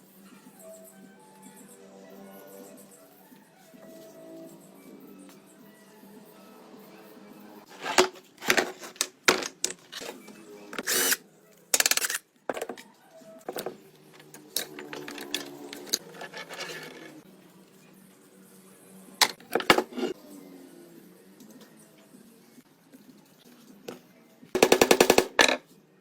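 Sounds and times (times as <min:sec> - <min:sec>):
metal tools knocking and clinking: 0:13.5 - 0:17.0.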